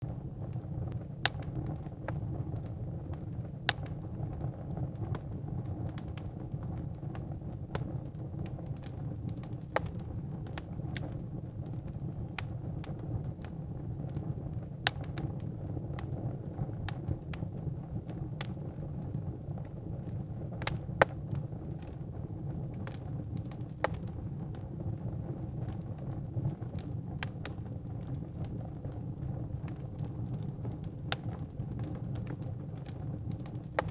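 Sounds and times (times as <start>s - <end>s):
low rumble of flames: 0.0s - 33.9s
wood crackling and popping: 0.0s - 33.9s.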